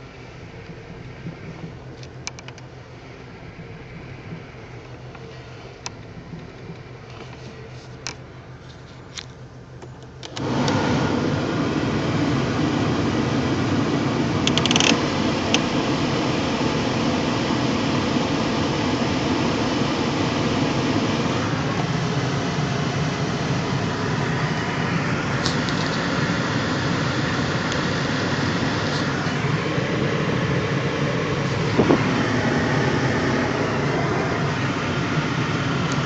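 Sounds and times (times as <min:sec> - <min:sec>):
car engine idling: 0:00.0 - 0:36.0
loud rushing mechanical noise: 0:10.3 - 0:36.0
sharp clicks: 0:14.4 - 0:15.6.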